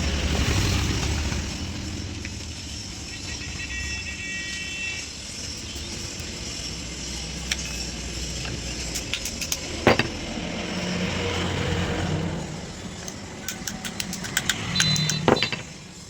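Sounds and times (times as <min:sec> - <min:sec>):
small clicks: 0:13.0 - 0:15.6.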